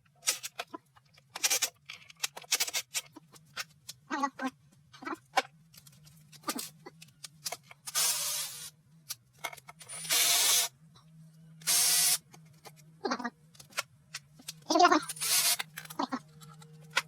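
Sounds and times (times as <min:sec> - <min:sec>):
tools clicking and knocking: 0:09.1 - 0:10.4, 0:13.5 - 0:17.0.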